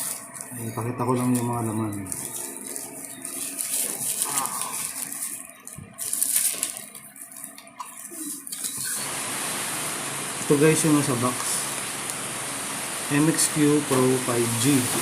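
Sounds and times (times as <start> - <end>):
cardboard packaging rustling: 0.0 - 8.9
steady hiss: 8.0 - 15.0.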